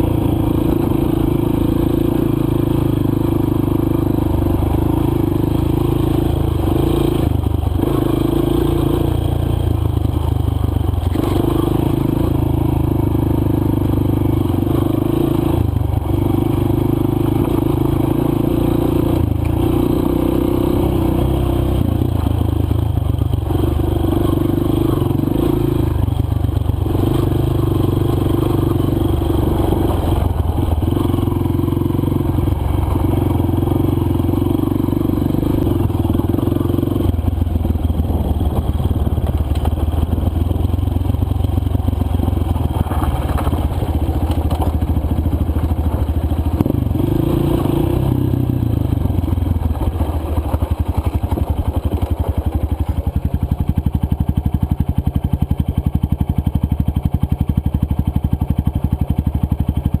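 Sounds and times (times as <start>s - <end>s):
dirt bike engine running: 0.0s - 60.0s
scraping and clattering on trail: 37.9s - 40.5s, 41.5s - 47.8s, 49.3s - 53.6s.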